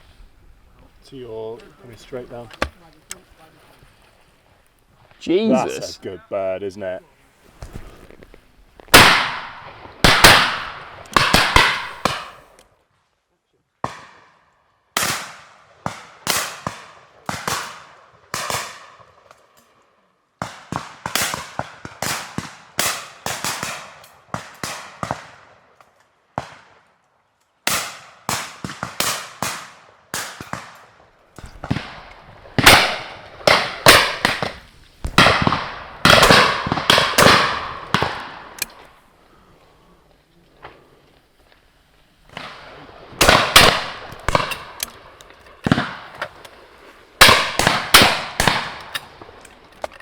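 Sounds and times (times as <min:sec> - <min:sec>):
shotguns firing: 0:08.9 - 0:12.4, 0:31.4 - 0:39.0, 0:42.3 - 0:46.4, 0:47.2 - 0:49.4.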